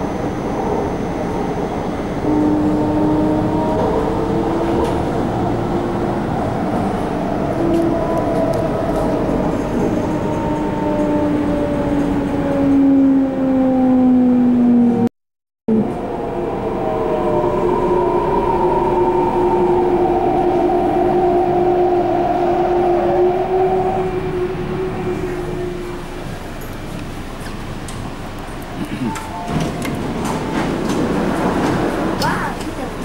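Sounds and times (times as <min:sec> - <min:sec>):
train running rumble: 0:00.0 - 0:13.5, 0:15.7 - 0:33.0
traction motors whining: 0:15.9 - 0:32.9.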